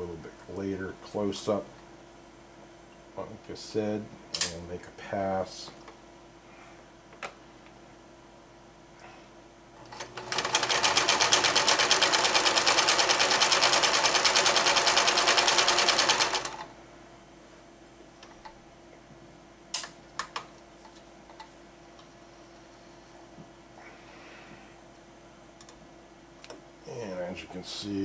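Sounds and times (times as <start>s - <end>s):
sewing machine stitching: 9.9s - 16.7s.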